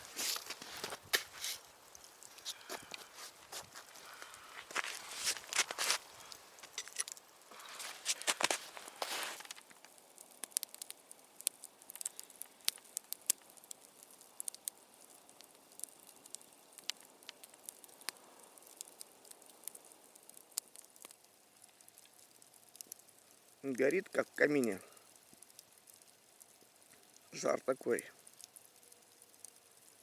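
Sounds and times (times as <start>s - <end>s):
rustling noise: 0.0s - 9.8s
campfire crackling and popping: 0.0s - 30.0s
faint hiss: 0.0s - 30.0s.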